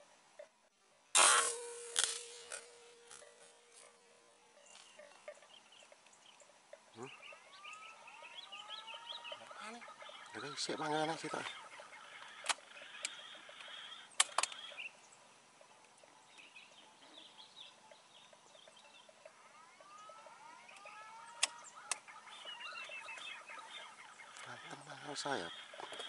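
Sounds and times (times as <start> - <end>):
birds chirping and whistling: 4.5 - 15.2, 16.3 - 26.0
sharp clicks: 11.2 - 14.8, 19.2 - 22.5.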